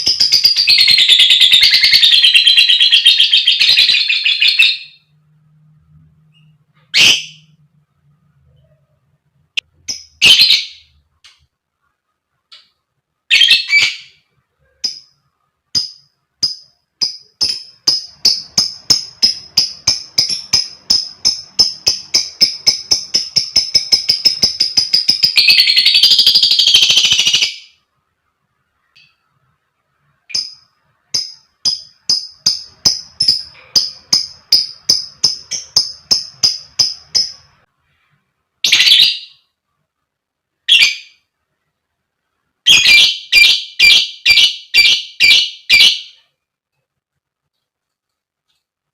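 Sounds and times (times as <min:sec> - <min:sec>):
lovebird chattering song: 0:00.0 - 0:05.1, 0:15.8 - 0:27.7, 0:30.3 - 0:37.6, 0:42.7 - 0:46.2
shrill bird calls: 0:00.0 - 0:05.1, 0:06.4 - 0:07.6, 0:13.3 - 0:14.3, 0:17.2 - 0:27.8, 0:38.6 - 0:39.5, 0:42.7 - 0:46.3.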